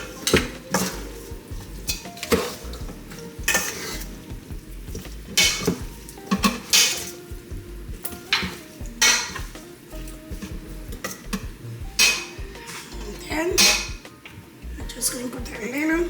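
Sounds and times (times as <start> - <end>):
spoon scraping bowl: 0.0 - 4.2.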